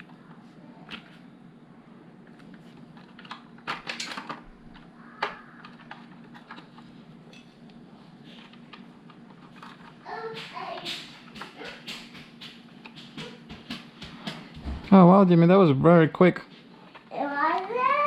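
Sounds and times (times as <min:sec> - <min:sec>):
plastic bricks clicking: 0:03.0 - 0:06.8.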